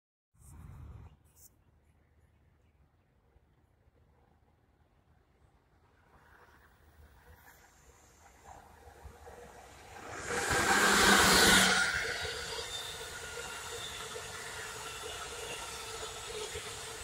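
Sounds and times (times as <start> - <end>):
high-speed train passing: 4.1 - 17.0.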